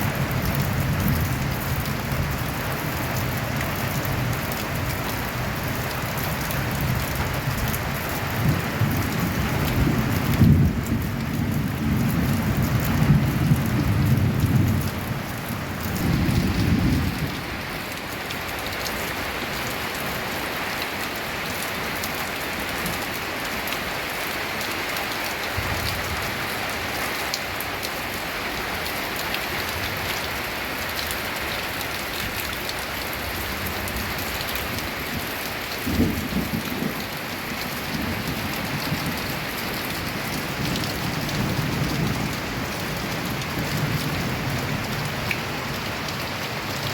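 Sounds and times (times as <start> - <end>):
rain on a tin roof: 0.0 - 46.9
low rumbles of thunder: 6.8 - 17.7, 34.8 - 45.8.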